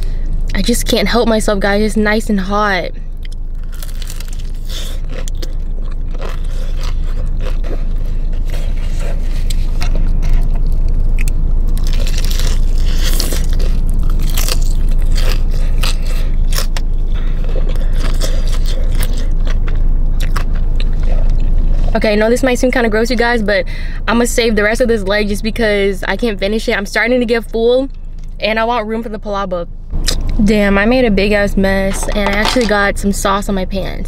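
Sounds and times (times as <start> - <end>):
steady low hum: 0.0 - 34.0
crunching and chewing fried chicken: 3.1 - 21.9.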